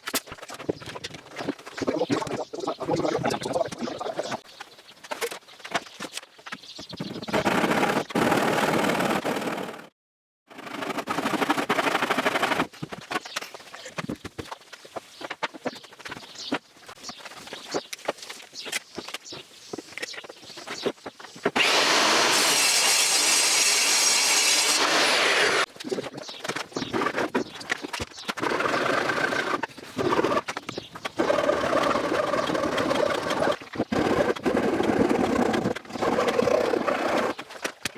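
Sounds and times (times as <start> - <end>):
power tool working wood: 21.6 - 25.7.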